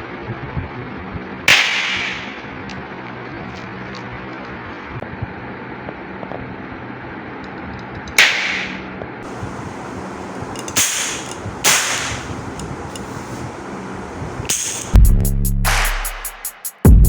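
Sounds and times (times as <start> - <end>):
toy gun firing sharp cracks: 1.5 - 2.7, 8.2 - 13.1, 14.5 - 15.0.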